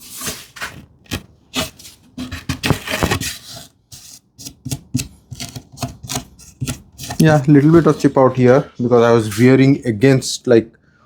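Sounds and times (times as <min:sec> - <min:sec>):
hand saw cutting plywood: 0:00.0 - 0:08.1.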